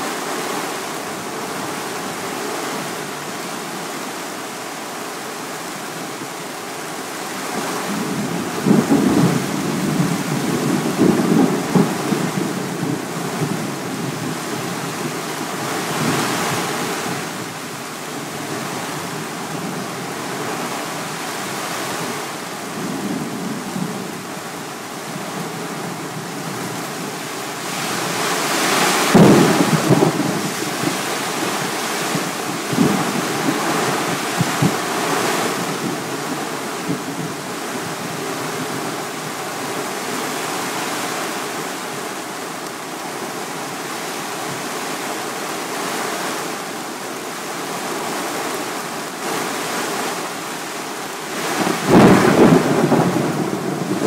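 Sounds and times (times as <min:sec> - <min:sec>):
heavy rain: 0:00.0 - 0:54.0
wind: 0:00.0 - 0:54.0
thunder clap with deep rumble: 0:29.1 - 0:31.0, 0:32.1 - 0:34.8, 0:51.6 - 0:54.0.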